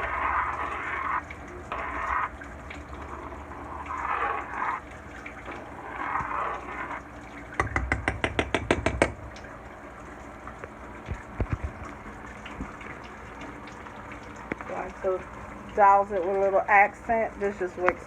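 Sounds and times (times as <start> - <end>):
gravy stirred in a frying pan: 0.0 - 18.0
soft knocks: 7.6 - 9.4.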